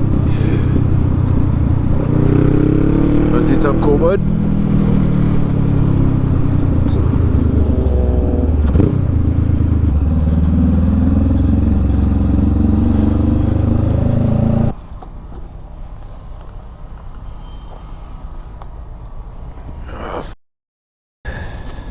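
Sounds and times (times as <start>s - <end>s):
motorcycle engine running: 0.0s - 14.8s.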